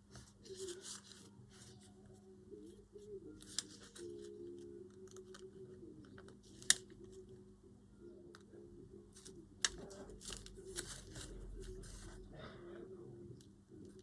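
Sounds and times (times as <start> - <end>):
paper rustling: 0.0 - 1.9, 3.4 - 4.3, 9.2 - 12.2.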